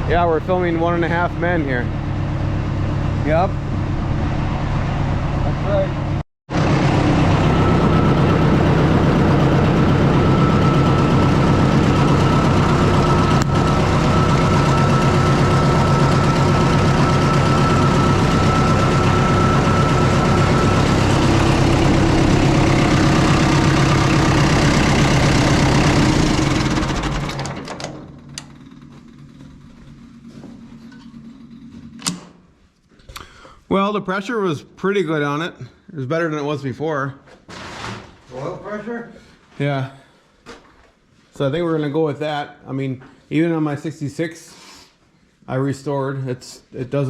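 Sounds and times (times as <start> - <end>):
tractor diesel engine running: 0.0 - 31.1
engine running down to a stop: 0.0 - 31.8.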